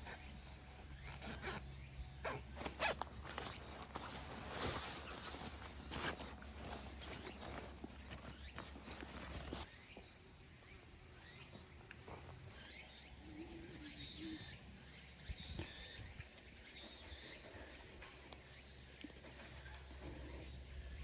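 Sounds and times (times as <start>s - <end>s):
faint bird chirps: 4.6s - 21.0s.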